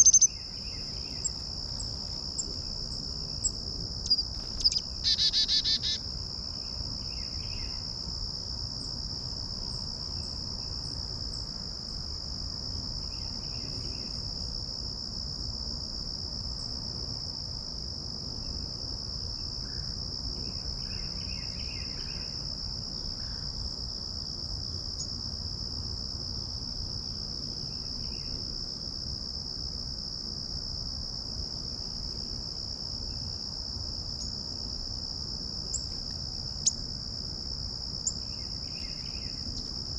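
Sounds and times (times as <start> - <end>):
faint bird chirps: 0.0 - 1.4, 4.1 - 6.0
insects trilling drone: 0.0 - 39.9
loud bird call: 5.1 - 6.0.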